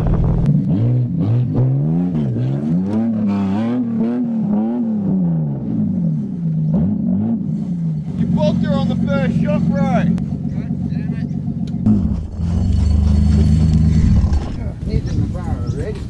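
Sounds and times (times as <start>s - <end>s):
car engine revving: 0.0s - 14.7s
wheels spinning in dirt: 12.1s - 16.0s.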